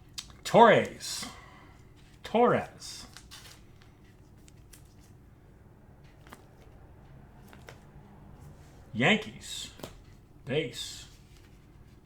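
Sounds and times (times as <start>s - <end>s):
low room hum: 0.0s - 12.0s
trading cards clicking and sliding: 2.9s - 5.2s, 6.0s - 8.7s, 9.6s - 10.2s.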